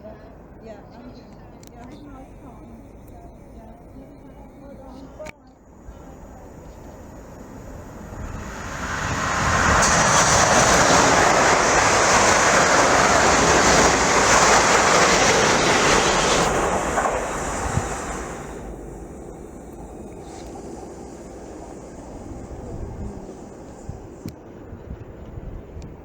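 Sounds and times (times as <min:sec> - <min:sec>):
train passing at speed: 0:00.0 - 0:26.0.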